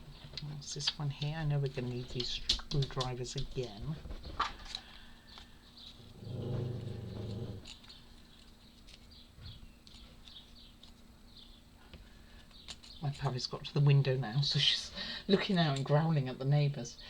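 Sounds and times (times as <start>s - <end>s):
puppy growling low: 6.0s - 7.8s
clicks of small parts handled: 9.8s - 11.1s, 11.9s - 13.3s.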